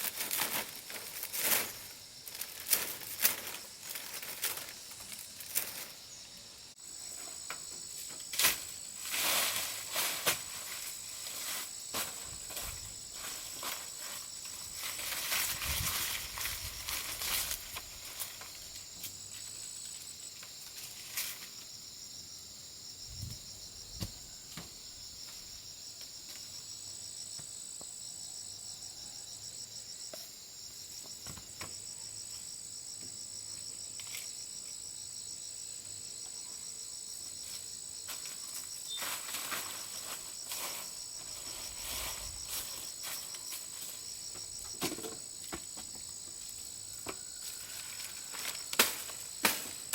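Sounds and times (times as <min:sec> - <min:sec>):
insects chirring: 0:00.0 - 0:49.9
rustles and knocks: 0:38.1 - 0:47.2.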